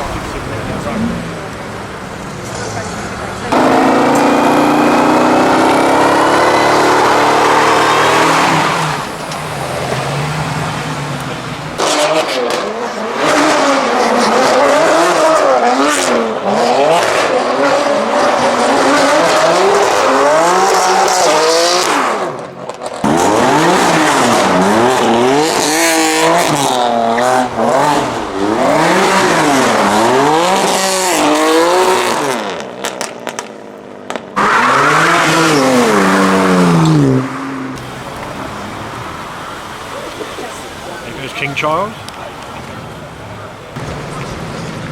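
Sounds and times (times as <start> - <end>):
car engine revving hard: 3.5 - 11.0, 11.7 - 33.1, 34.1 - 39.2.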